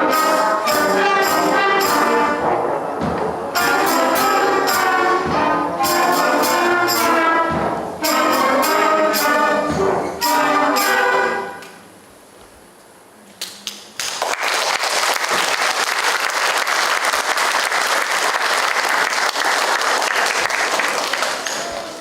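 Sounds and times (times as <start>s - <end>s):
audience applauding: 14.0s - 22.0s.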